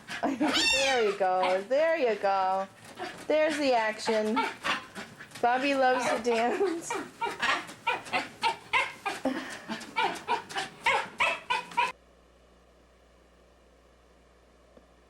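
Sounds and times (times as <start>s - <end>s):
dog yipping and whimpering: 0.1s - 1.7s, 4.0s - 11.9s.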